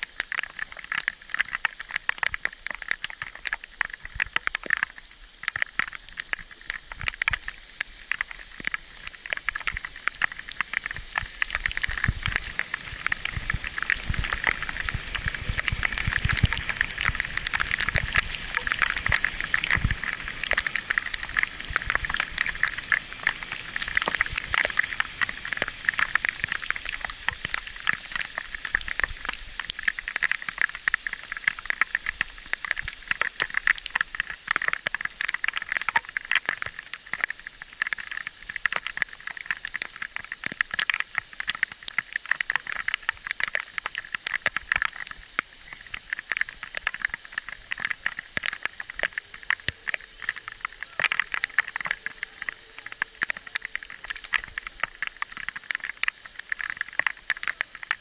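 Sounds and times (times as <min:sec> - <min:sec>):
bicycle tyres on gravel: 0:05.4 - 0:37.0, 0:43.7 - 0:58.0
wind rumbling on microphone: 0:08.8 - 0:27.9.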